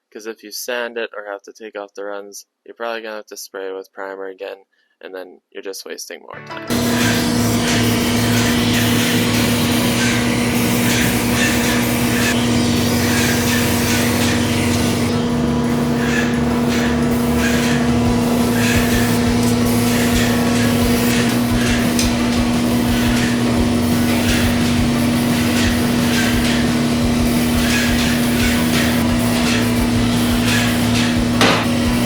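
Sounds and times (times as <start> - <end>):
higher hum: 6.6 - 32.0
paint sprayer machine hum: 6.7 - 32.0
spray hiss: 6.7 - 32.0.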